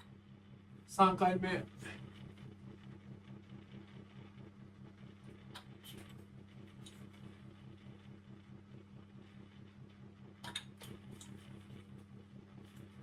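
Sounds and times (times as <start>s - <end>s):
pulsing mechanical hum: 0.0s - 13.0s.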